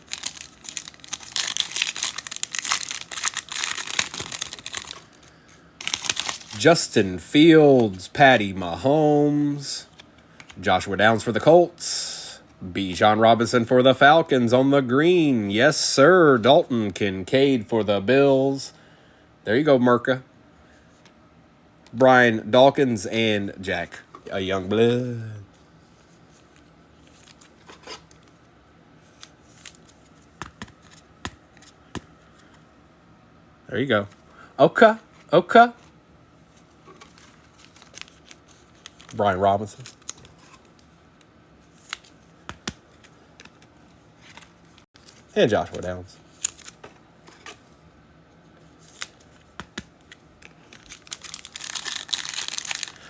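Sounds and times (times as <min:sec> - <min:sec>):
cards scraping and clicking: 0:00.1 - 0:05.1
cards clicking and snapping: 0:49.0 - 0:49.9.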